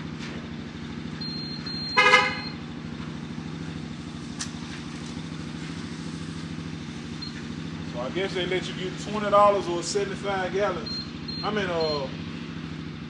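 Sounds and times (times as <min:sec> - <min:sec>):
engine idling: 0:00.0 - 0:13.0
car horn toot: 0:01.8 - 0:02.6
click: 0:04.4 - 0:04.6.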